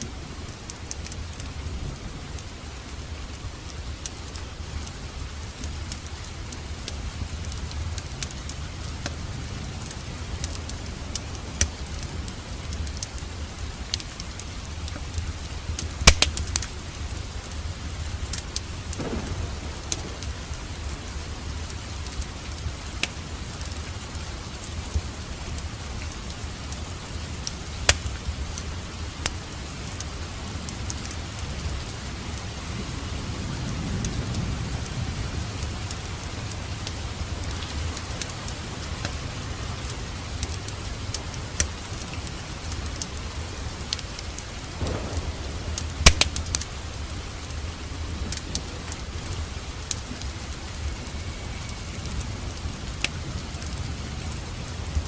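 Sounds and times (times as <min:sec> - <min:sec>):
fireplace crackling and popping: 0:00.0 - 0:32.6, 0:35.5 - 0:51.8, 0:53.0 - 0:54.0
steady rain: 0:00.0 - 0:55.0
low thunder rumble: 0:14.6 - 0:25.8, 0:44.6 - 0:55.0.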